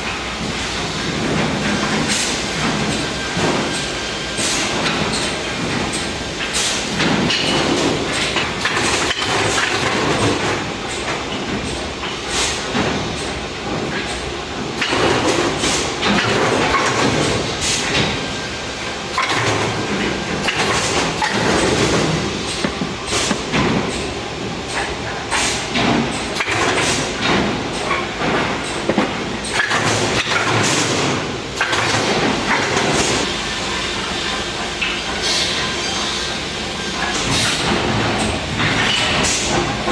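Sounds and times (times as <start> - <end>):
cnc router clattering: 0.0 - 39.9
sharp clicks and knocks: 4.8 - 18.2, 19.2 - 24.1, 24.7 - 33.2.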